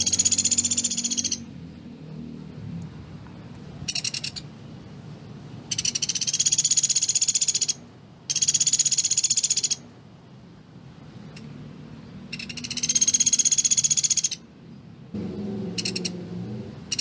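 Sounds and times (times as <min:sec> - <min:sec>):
bird rapid dry trills: 0:00.0 - 0:01.4.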